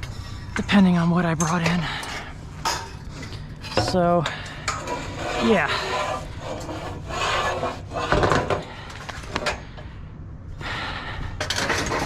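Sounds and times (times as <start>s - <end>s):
scrap metal clattering and scraping: 1.4s - 8.8s.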